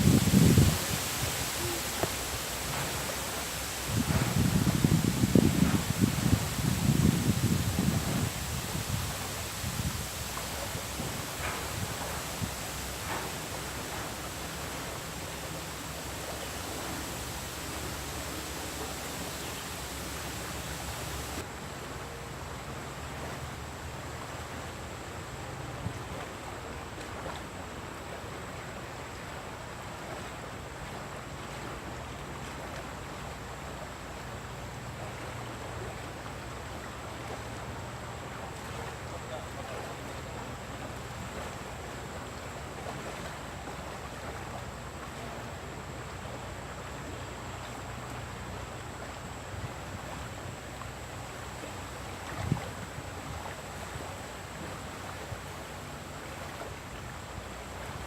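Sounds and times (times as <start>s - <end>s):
fast-flowing river rushing: 0.0s - 21.7s
river current rushing: 0.0s - 58.0s.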